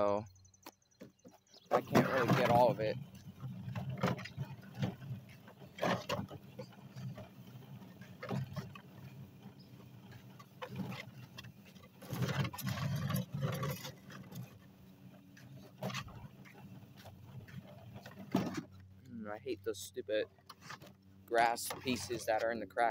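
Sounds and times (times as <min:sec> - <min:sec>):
push sweeper brushes on concrete: 0:01.6 - 0:22.9.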